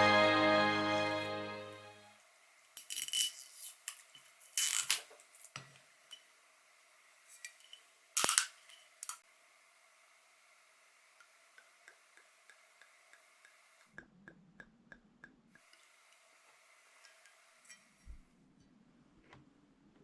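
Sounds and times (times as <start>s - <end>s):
background music: 0.0s - 2.2s
small hard objects clinking: 2.8s - 5.6s.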